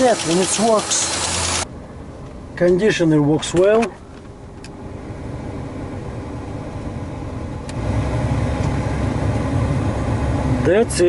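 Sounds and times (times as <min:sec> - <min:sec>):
car engine idling: 0:00.0 - 0:02.6.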